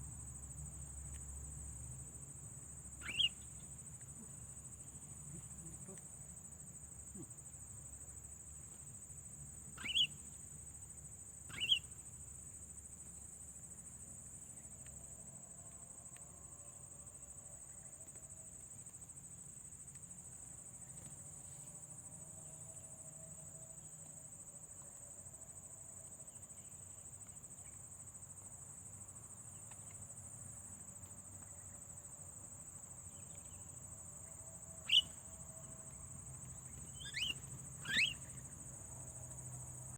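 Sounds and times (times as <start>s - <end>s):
insects chirring: 0.0s - 39.9s
sharp bird calls: 3.0s - 3.5s, 9.8s - 10.2s, 11.5s - 11.9s, 34.8s - 35.2s, 36.8s - 38.4s.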